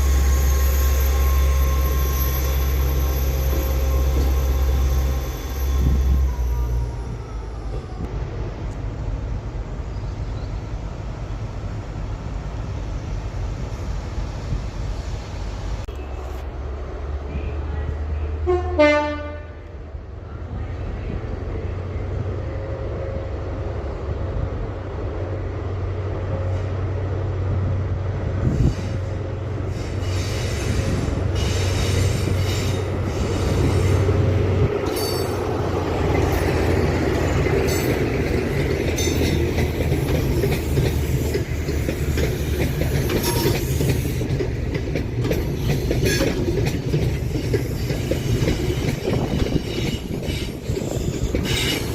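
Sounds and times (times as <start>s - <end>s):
train engine rumbling: 0.0s - 51.9s
train horn blast: 18.3s - 19.7s
wheels clicking over rail joints: 34.8s - 51.9s
wheel squeal: 40.1s - 44.2s, 47.3s - 51.9s.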